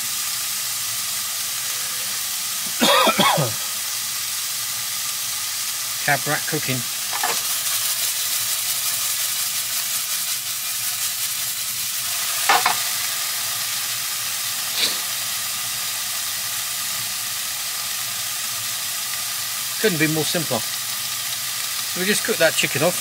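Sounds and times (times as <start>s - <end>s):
chicken sizzling in a wok: 0.0s - 23.0s.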